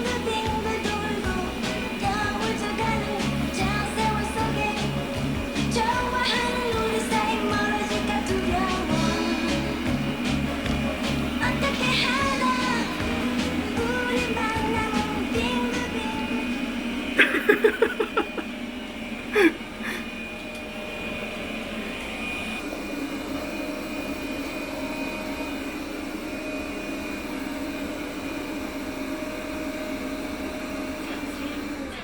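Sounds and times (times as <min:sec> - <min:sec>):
robot vacuum cleaner humming: 0:00.0 - 0:32.0.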